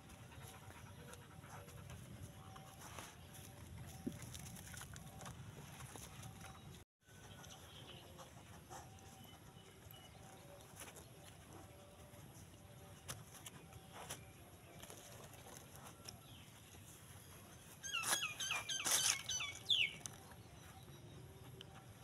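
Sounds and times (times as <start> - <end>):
bird chirping: 16.2 - 21.8.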